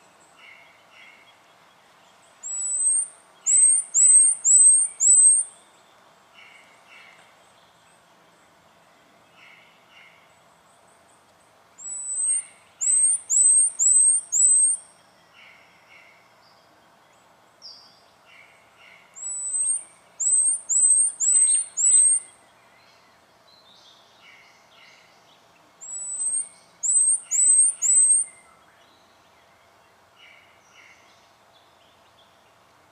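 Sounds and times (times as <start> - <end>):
bird singing high whistled notes: 2.4 - 5.5, 11.8 - 14.8, 19.2 - 22.3, 25.8 - 28.6.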